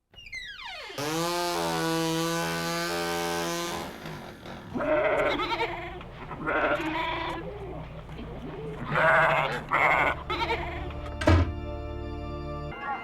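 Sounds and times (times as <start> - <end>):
wavering vocal cries: 4.4 - 11.2.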